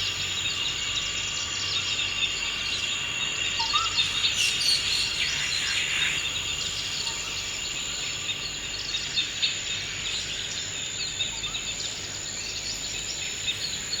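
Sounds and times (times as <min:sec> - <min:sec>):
high-pitched insect drone: 0:00.2 - 0:07.8
bird chirps and calls: 0:03.4 - 0:07.5.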